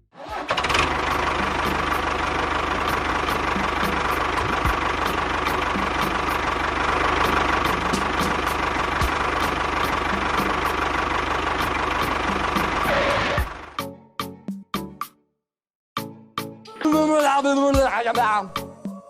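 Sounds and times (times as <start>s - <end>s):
small engine idling with knock: 0.4s - 13.8s.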